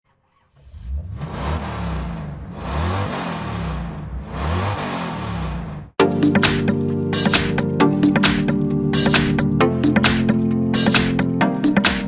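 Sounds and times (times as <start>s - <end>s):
engine revving: 0.1s - 6.0s.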